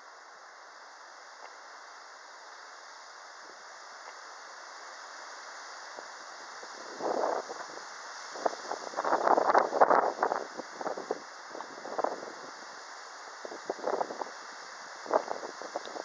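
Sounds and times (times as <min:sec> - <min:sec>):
wind rushing through trees: 0:00.0 - 0:16.0.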